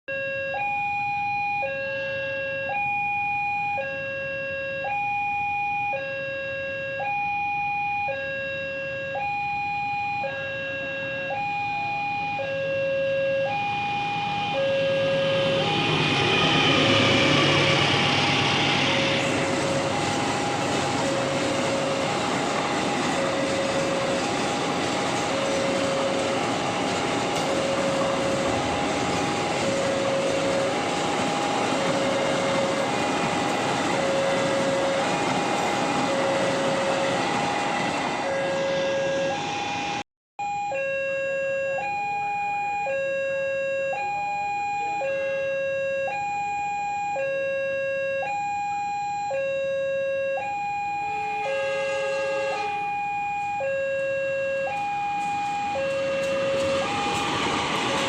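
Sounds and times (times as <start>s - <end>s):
passing train rumble: 13.1s - 40.0s, 51.0s - 58.0s.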